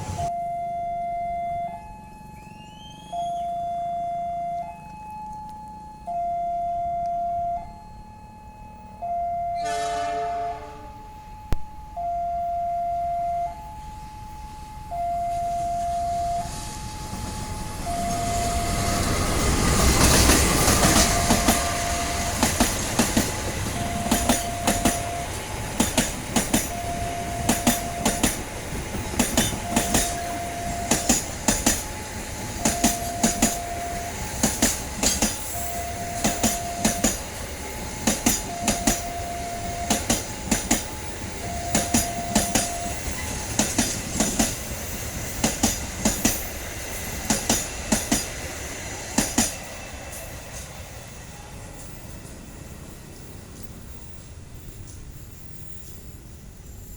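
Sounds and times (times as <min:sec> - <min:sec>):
locomotive rumble: 0:00.0 - 0:00.3, 0:14.3 - 0:56.3
two-tone warning alarm: 0:00.0 - 0:48.6
train wheels clacking over rail joints: 0:19.0 - 0:51.1.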